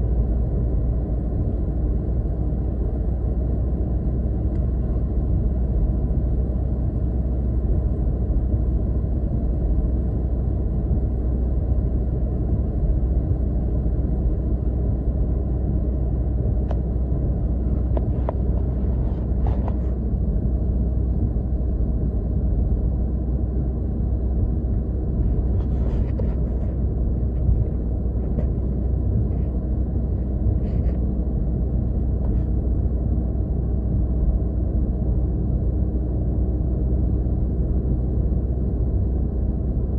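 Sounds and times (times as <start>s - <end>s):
car road and engine rumble: 0.0s - 39.9s
faint light ticks: 4.5s - 4.7s.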